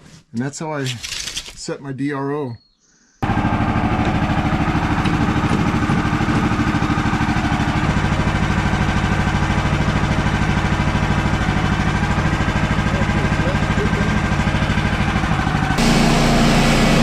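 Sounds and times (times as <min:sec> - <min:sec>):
sawmill gasoline engine running: 0:03.2 - 0:17.0.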